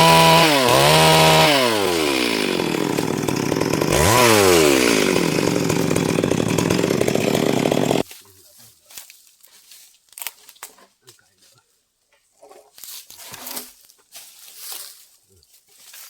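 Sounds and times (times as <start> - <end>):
chainsaw revving: 0.0 - 8.0.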